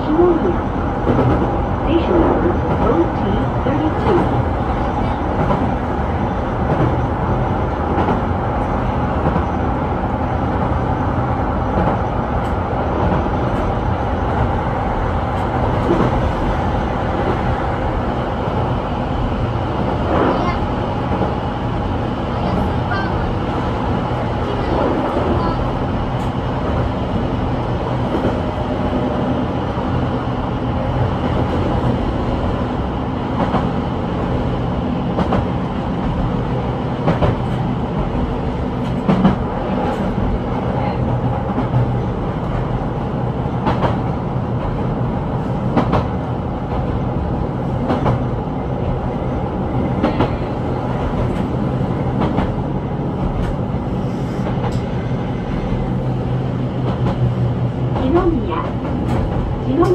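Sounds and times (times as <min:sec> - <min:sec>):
electric train running hum: 0:00.0 - 0:59.9
train wheel clacks: 0:43.6 - 0:44.8, 0:51.0 - 0:52.6, 0:56.8 - 0:59.9.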